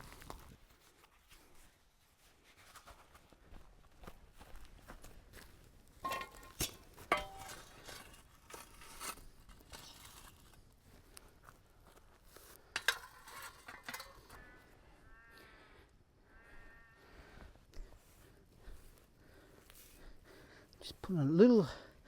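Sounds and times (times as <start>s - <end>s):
metal cooking gear clanking: 6.0s - 7.6s, 12.8s - 14.4s.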